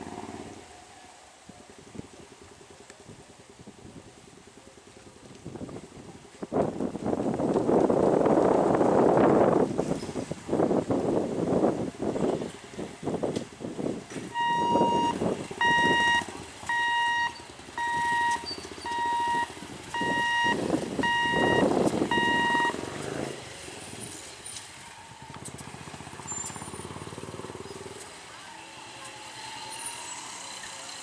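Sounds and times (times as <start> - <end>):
electronic warning beeps: 14.4 - 22.8.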